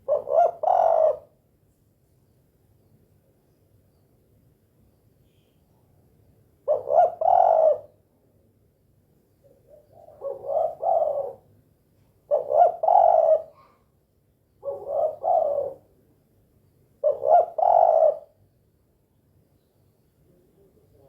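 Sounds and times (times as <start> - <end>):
dove cooing: 0.0 - 1.4, 6.6 - 8.0, 9.4 - 11.5, 12.2 - 13.9, 14.6 - 16.0, 17.0 - 18.4.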